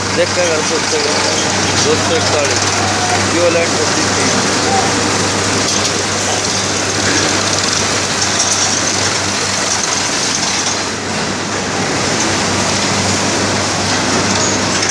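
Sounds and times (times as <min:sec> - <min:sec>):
heavy machinery running: 0:00.0 - 0:14.9.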